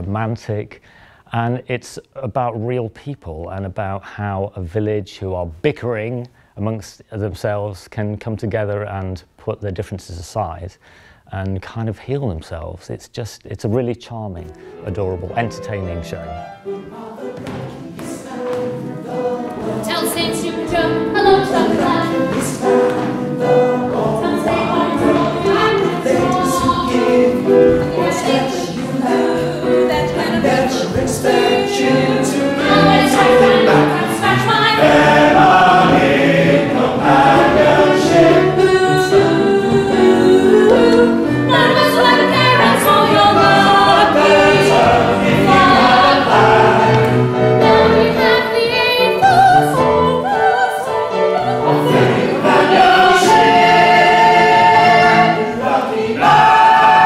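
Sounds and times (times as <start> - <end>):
chorus singing show tune: 14.3 - 57.0.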